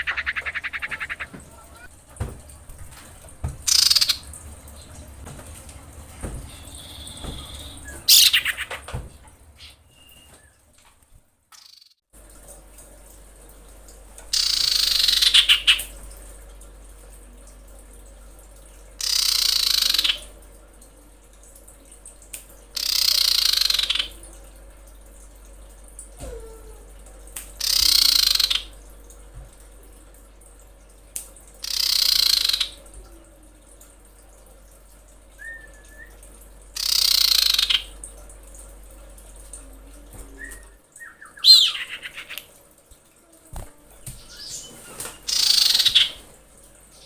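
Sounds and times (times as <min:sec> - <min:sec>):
bird calls: 0:00.0 - 0:01.9, 0:03.7 - 0:04.3, 0:06.4 - 0:08.9, 0:14.3 - 0:15.9, 0:19.0 - 0:20.3, 0:22.8 - 0:24.2, 0:27.6 - 0:28.7, 0:31.6 - 0:32.8, 0:36.8 - 0:37.9, 0:40.3 - 0:42.5, 0:44.2 - 0:46.2
bird harsh rasping calls: 0:00.0 - 0:01.9, 0:03.7 - 0:04.3, 0:06.5 - 0:08.7, 0:36.8 - 0:37.9, 0:41.1 - 0:42.4, 0:45.3 - 0:46.2.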